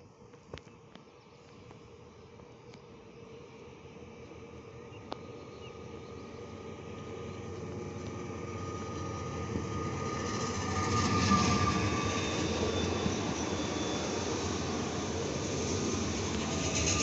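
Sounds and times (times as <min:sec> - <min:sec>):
faint steady whine: 0:00.0 - 0:17.0
train wheels rumbling on rails: 0:05.8 - 0:17.0.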